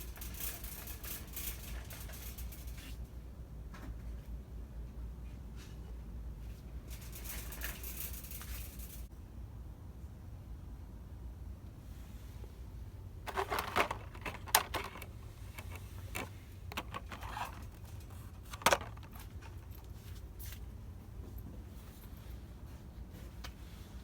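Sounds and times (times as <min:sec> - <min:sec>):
steady low hum: 0:00.0 - 0:23.4
packaging rustling and clicking: 0:13.3 - 0:19.7.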